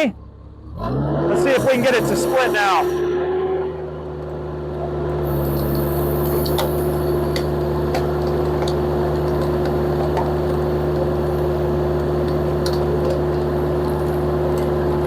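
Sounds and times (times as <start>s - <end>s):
engine running at full throttle: 0.0s - 15.0s
steady whine: 1.3s - 15.0s
wood ticking and cracking: 6.4s - 15.0s.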